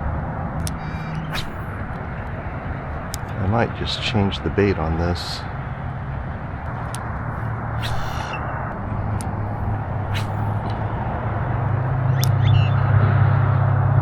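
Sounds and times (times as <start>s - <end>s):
low mechanical hum: 0.0s - 14.0s
sharp clicks: 12.2s - 12.5s.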